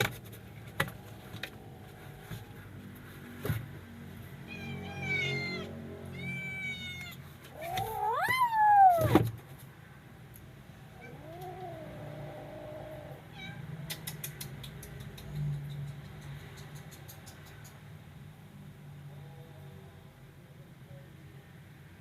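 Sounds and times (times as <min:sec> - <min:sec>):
kitten meowing: 0:04.5 - 0:09.2, 0:12.7 - 0:13.6.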